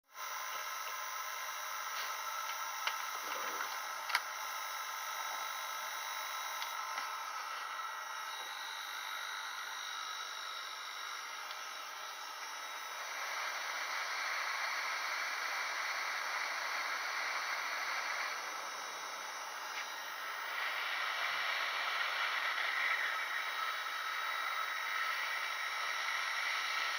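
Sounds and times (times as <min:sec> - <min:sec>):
faint whining tones: 0:00.1 - 0:26.9
click: 0:06.6 - 0:07.1.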